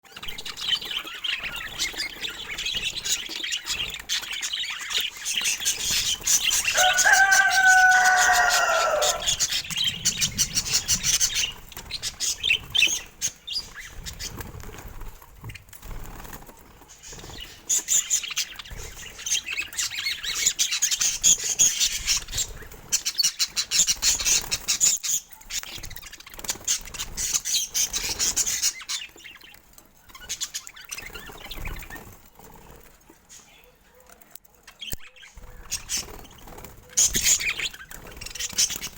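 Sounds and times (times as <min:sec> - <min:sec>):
budgerigars chattering: 0:00.2 - 0:14.4, 0:36.9 - 0:38.9.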